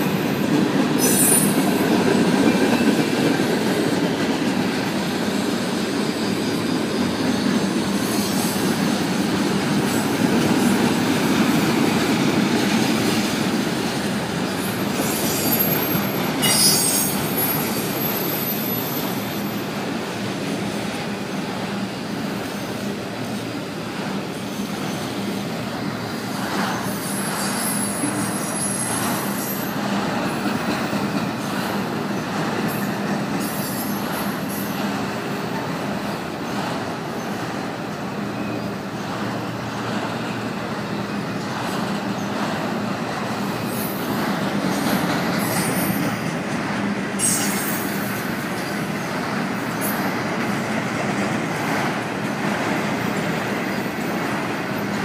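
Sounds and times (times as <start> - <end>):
freight train wheels rumbling: 0.0 - 55.0
high-pitched wheel squeals: 1.0 - 1.6, 14.6 - 19.5, 26.8 - 29.8.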